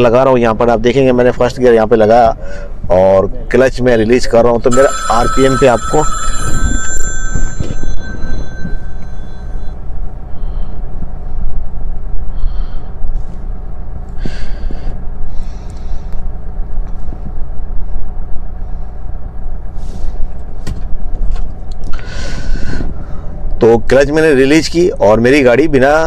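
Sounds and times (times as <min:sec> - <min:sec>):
high electronic tone: 0:04.7 - 0:09.8.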